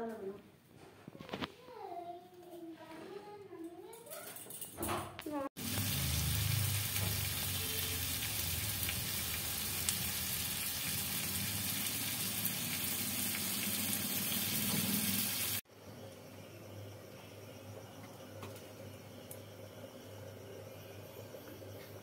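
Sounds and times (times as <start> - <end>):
prawns sizzling in oil: 5.6 - 15.6.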